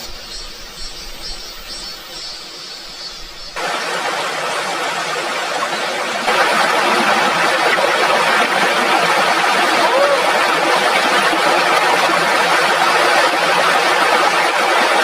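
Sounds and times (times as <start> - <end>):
heavy rain falling: 3.6 - 15.0.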